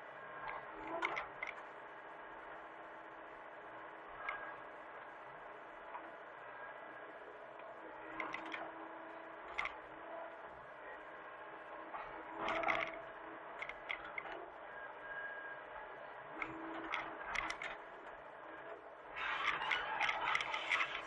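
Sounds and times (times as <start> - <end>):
metallic clicks and clatter: 19.4 - 21.0.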